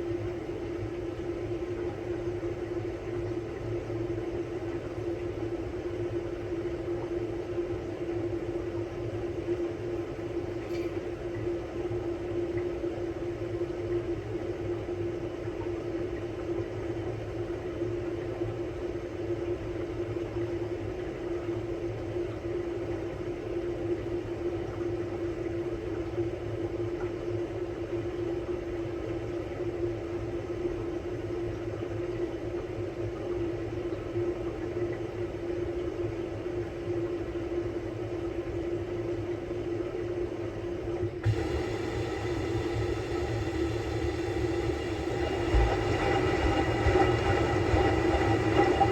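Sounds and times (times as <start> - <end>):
washing machine motor hum: 41.1 - 48.9.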